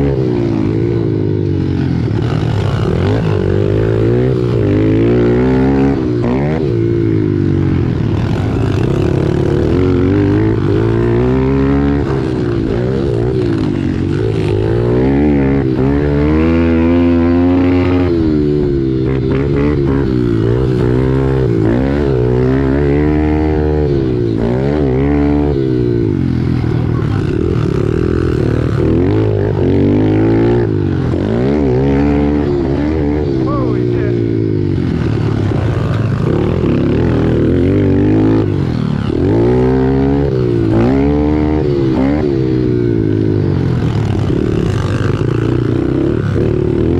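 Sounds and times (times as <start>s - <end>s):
pit bike engine revving: 0.0s - 46.9s.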